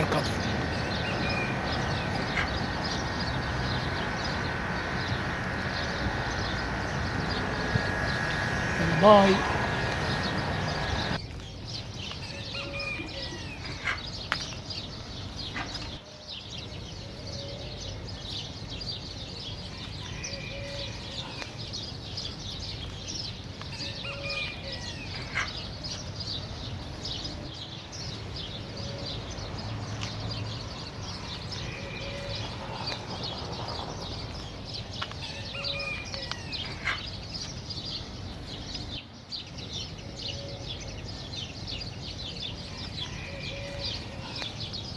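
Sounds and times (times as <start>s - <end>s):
soft low bird call: 0.0s - 11.2s
small birds chirping: 0.0s - 44.9s.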